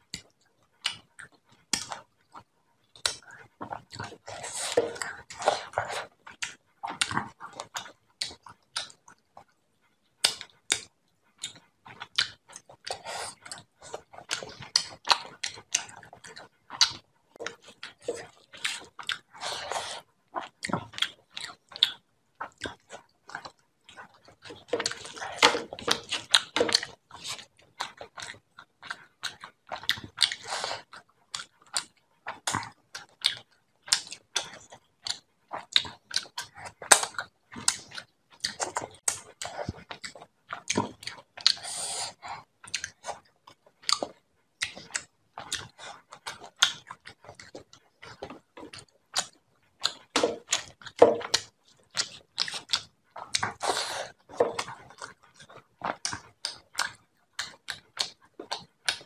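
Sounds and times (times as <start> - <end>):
wet chewing and mouth smacking: 0.0 - 59.0.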